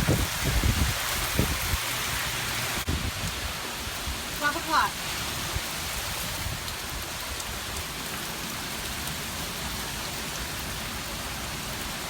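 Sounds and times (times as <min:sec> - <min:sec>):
low wind rumble: 0:00.0 - 0:04.4
hard rain hissing: 0:00.0 - 0:12.0.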